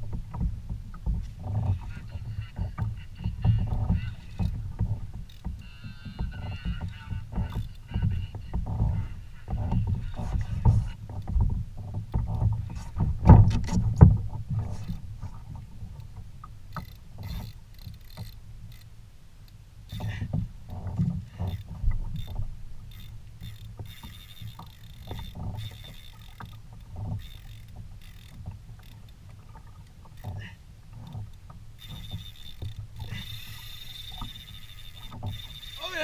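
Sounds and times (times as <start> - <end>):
low rumble of water and wind: 0.0 - 36.0.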